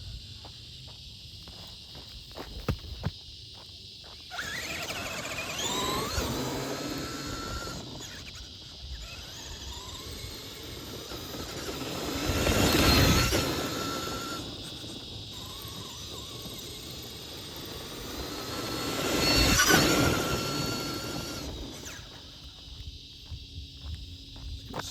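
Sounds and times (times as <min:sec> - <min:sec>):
toy truck electric motor whining: 0:04.2 - 0:22.6.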